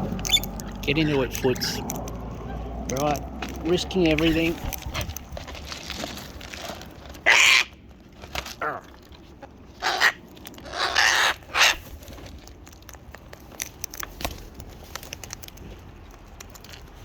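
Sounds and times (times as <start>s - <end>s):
beaks pecking at food: 0.0s - 17.0s
cockatoos squawking: 7.2s - 7.8s, 9.8s - 11.9s.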